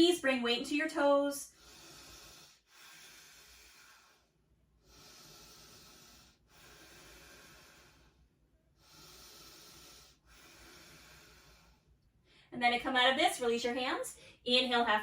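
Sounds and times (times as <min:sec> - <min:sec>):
slow deep breathing: 0:01.5 - 0:12.5.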